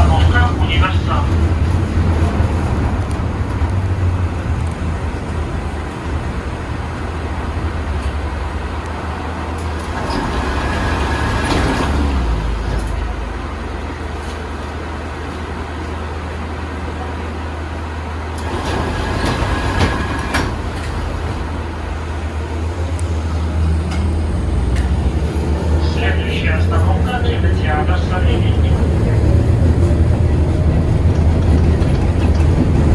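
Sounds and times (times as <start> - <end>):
tram electrical hum: 0.0 - 32.9
tram rattling and running noise: 0.0 - 32.9.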